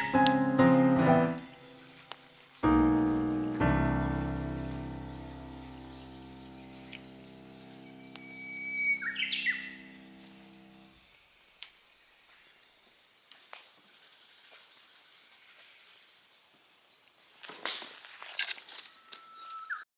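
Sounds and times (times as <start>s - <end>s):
faint high-pitched tone: 0.0s - 1.9s, 2.6s - 10.9s
bird whistling call: 8.1s - 9.9s.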